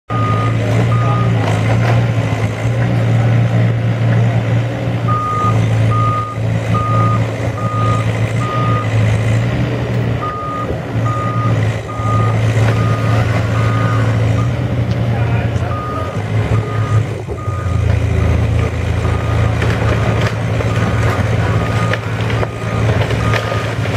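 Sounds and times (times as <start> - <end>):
diesel machinery running: 0.1 - 23.9
backup alarm beeping: 5.1 - 8.9, 10.2 - 14.6.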